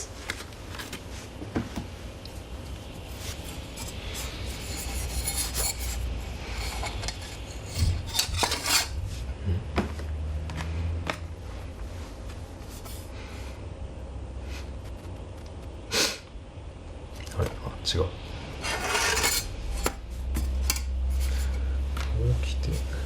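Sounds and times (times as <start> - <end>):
metal parts rubbing and scraping: 3.0 - 9.1, 18.6 - 21.6.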